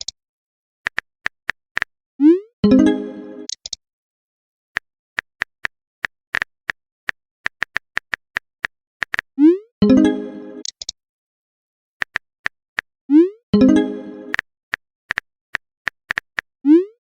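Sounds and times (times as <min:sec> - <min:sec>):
bright message chime: 0:02.6 - 0:03.5, 0:09.8 - 0:10.6, 0:13.6 - 0:14.4
typing clicks: 0:03.4 - 0:03.8.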